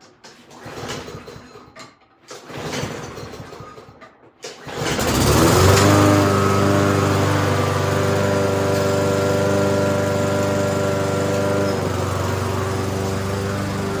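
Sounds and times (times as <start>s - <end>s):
lawn mower engine running: 4.8s - 14.0s.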